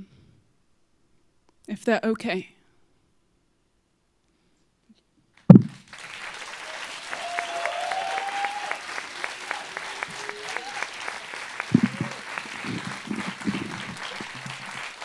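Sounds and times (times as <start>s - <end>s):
audience applause: 5.6s - 15.0s.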